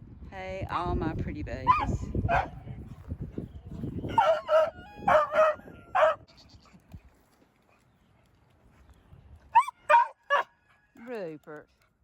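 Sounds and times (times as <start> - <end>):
dog barking: 1.7 - 2.6, 4.1 - 6.2, 9.6 - 10.5.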